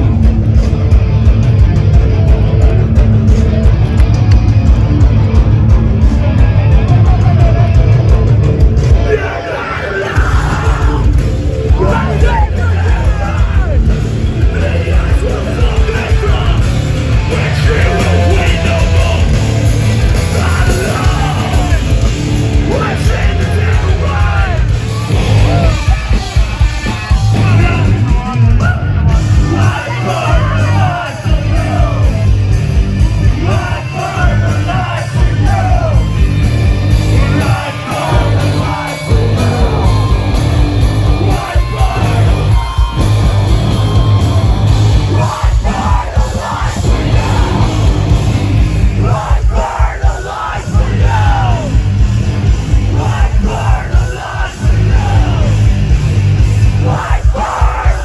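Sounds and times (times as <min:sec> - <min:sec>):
heavy rock band playing: 0:00.0 - 0:58.0
person yelling vocals: 0:11.7 - 0:13.9.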